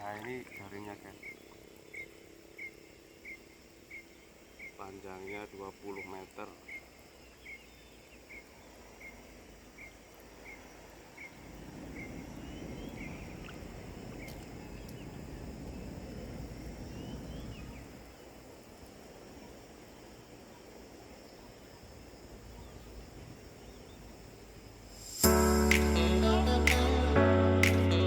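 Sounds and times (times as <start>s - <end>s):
bird chirping: 0.0s - 13.6s
insect drone: 0.0s - 28.0s.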